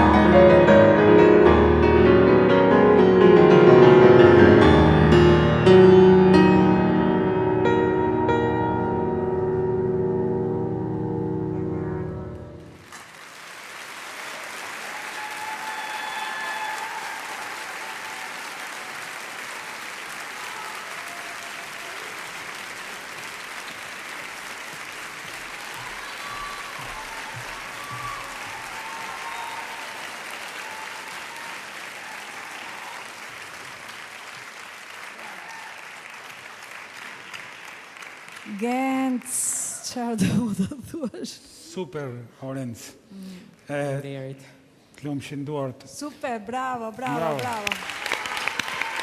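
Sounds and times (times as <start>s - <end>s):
piano note: 0.0s - 12.8s
audience applauding: 12.6s - 40.0s, 47.0s - 49.0s.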